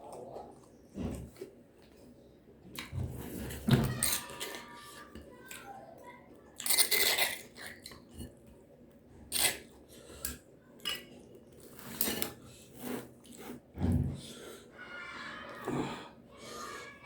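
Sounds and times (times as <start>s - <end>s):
utensils clinking on a plate: 3.5s - 5.6s, 6.6s - 8.4s, 9.3s - 12.4s.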